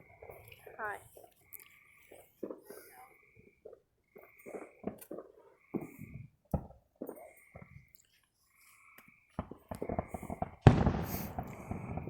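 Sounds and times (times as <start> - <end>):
fireworks crackling: 9.4 - 12.0
loud explosion: 10.6 - 12.0.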